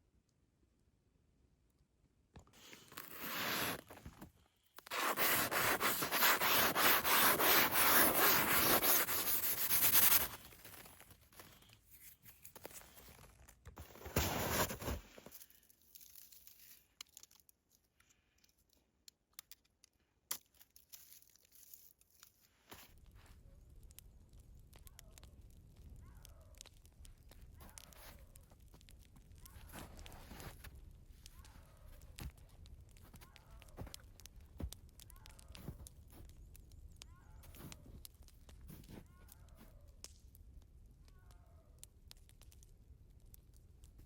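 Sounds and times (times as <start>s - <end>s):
rubbing scraping noise: 2.9s - 3.9s, 4.9s - 10.4s.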